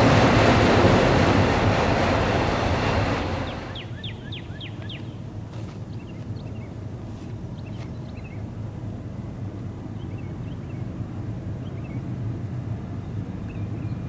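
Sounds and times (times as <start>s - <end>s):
freight train rumbling past: 0.0s - 5.5s.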